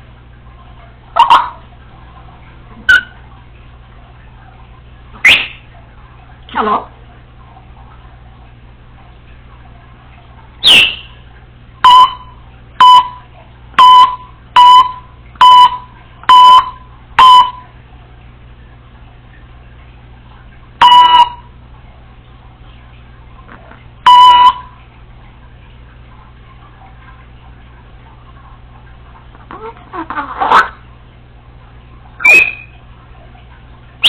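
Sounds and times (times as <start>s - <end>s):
parrot imitating beeps: 1.2s - 1.6s, 2.9s - 3.2s, 10.6s - 11.1s, 20.8s - 21.4s, 24.1s - 24.6s, 29.5s - 30.8s, 32.2s - 32.8s
parrot falling whistle: 5.2s - 5.6s, 10.6s - 11.2s, 32.2s - 32.8s.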